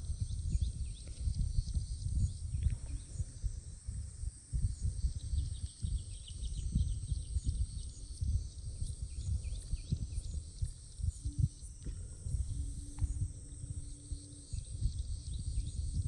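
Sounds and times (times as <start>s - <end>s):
steady high-pitched drone: 4.2s - 16.0s.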